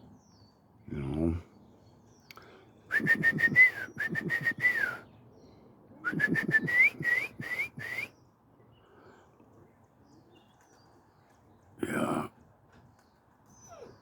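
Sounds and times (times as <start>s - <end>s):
person whistling short notes: 2.9s - 5.0s, 6.1s - 8.1s.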